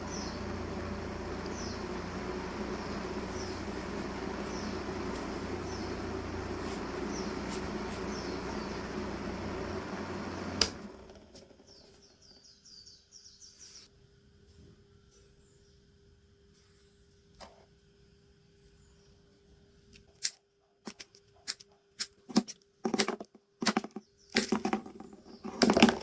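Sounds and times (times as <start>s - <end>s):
small fan motor humming: 0.0s - 13.4s, 20.9s - 26.0s
faint birds chirping: 0.0s - 20.0s, 23.7s - 26.0s.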